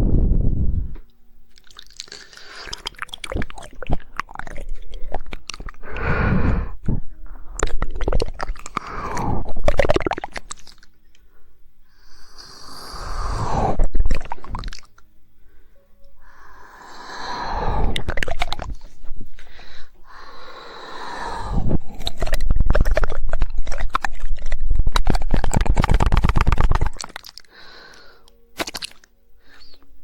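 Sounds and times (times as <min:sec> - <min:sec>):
rapid tongue clicks: 0:01.5 - 0:06.6, 0:07.5 - 0:11.0, 0:17.9 - 0:18.9, 0:21.5 - 0:28.0, 0:28.6 - 0:29.1
wet mouth noises: 0:01.5 - 0:11.0, 0:12.0 - 0:15.1, 0:16.8 - 0:29.9.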